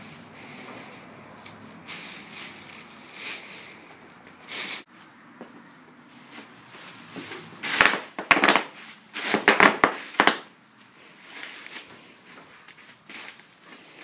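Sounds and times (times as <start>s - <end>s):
bubble wrap popping under hooves: 7.6s - 10.6s.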